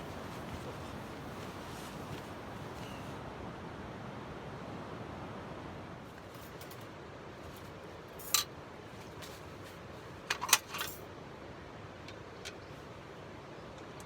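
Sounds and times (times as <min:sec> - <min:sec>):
light metallic clinks: 0:08.2 - 0:08.5.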